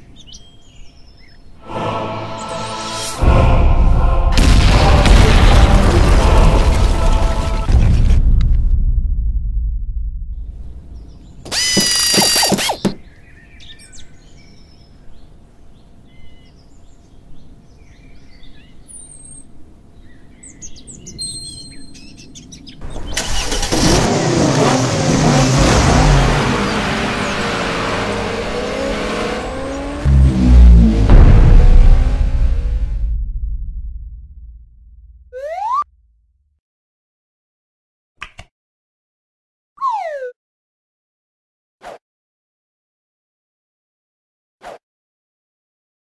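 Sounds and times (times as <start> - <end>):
faint birdsong chirps: 0.0 - 1.6, 10.9 - 23.2
heavy low thuds: 7.7 - 11.4, 30.1 - 35.3
car engine starting and running: 22.8 - 35.2.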